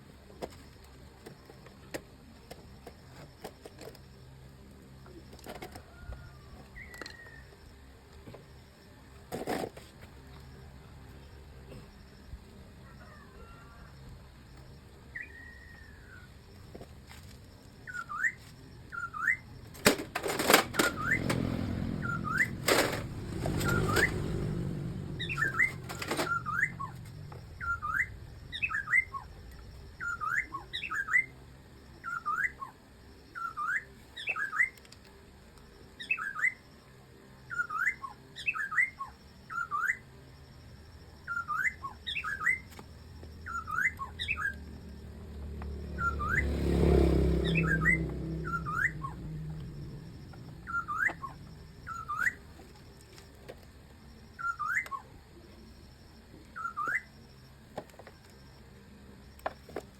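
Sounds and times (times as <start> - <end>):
bird chirping: 20.8 - 34.8, 41.2 - 44.8, 45.7 - 53.4, 54.2 - 55.1, 56.5 - 57.2.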